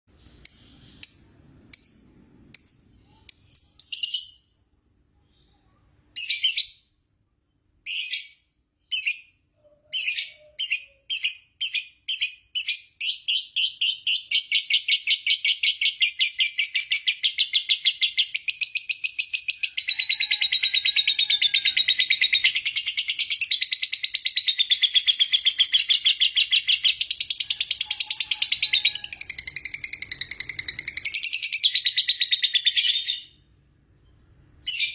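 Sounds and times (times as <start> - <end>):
lovebird chirping trill: 0.1 - 4.5.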